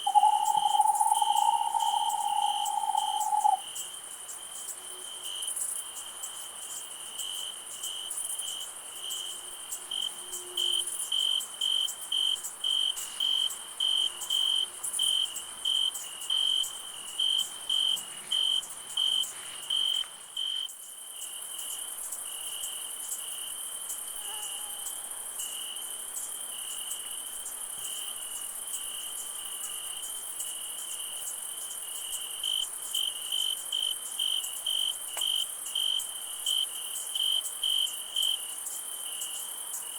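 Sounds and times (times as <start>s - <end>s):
high-pitched insect trill: 0.0s - 3.8s
cricket chirping: 0.0s - 39.9s.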